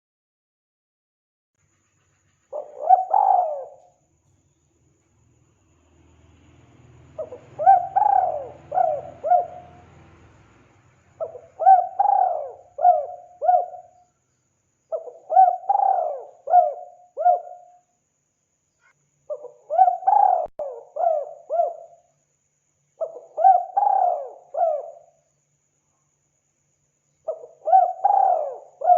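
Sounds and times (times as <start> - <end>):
dove cooing: 2.5 - 4.0, 7.2 - 10.0, 11.2 - 14.0, 14.9 - 17.8, 19.3 - 22.0, 23.0 - 25.1, 27.3 - 28.9.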